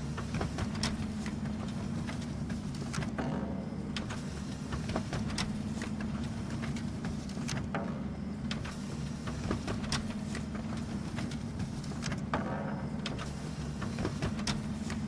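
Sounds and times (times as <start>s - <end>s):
printer motor hum: 0.0s - 15.0s
paper-feed clicks and taps: 0.2s - 3.2s, 4.0s - 7.8s, 8.5s - 12.4s, 13.0s - 15.0s.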